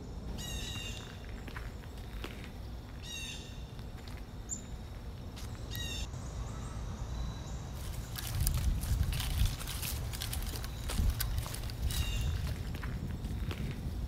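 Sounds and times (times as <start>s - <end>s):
low outdoor rumble: 0.0s - 14.0s
bird calls: 0.3s - 2.4s, 3.0s - 3.8s, 5.5s - 8.5s, 10.2s - 12.6s.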